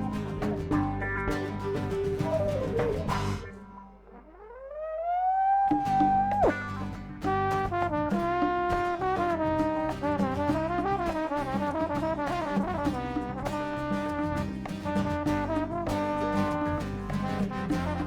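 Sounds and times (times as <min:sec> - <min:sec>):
band with bass and percussion: 0:00.0 - 0:04.0, 0:05.7 - 0:18.0
trombone solo: 0:06.4 - 0:18.0.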